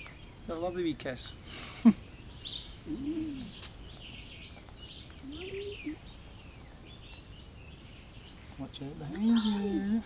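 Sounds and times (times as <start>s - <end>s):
birds chirping: 0.0s - 10.0s
rising and falling bird calls: 1.6s - 10.0s.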